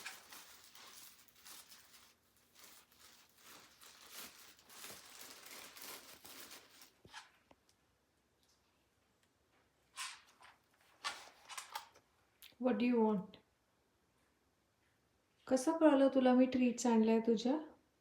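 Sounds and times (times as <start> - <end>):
grocery bags rustling: 0.0 - 7.4.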